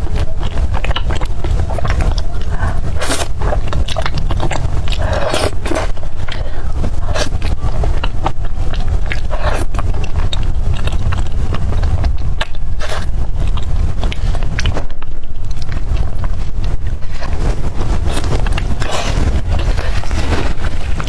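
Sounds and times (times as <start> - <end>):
low rumble: 0.0 - 21.0
mouth clicks and smacks: 0.0 - 21.0
person chewing and biting: 0.0 - 21.0.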